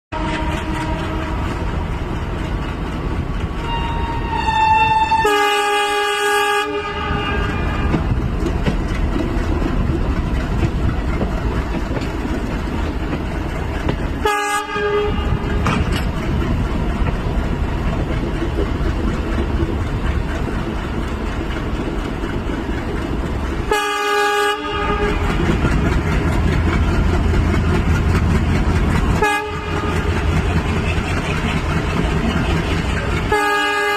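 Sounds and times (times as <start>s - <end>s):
train horn blasts: 0.1s - 1.8s, 3.6s - 8.2s, 14.2s - 15.8s, 23.6s - 25.6s, 29.1s - 30.3s, 33.2s - 33.9s
diesel locomotive rumble: 0.1s - 33.9s
wheels clicking on rails: 0.2s - 6.0s, 7.0s - 33.9s.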